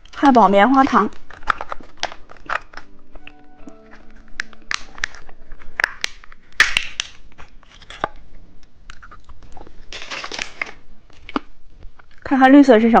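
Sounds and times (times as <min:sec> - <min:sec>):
plastic packaging crackling: 0:00.0 - 0:12.3
faint musical tones: 0:02.3 - 0:06.6.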